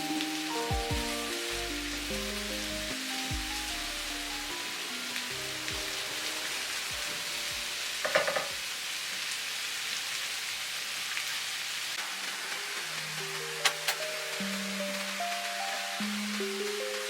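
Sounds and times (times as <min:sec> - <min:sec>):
mushrooms sizzling in a pan: 0:04.5 - 0:16.6
utensil clattering against pan: 0:08.0 - 0:08.6.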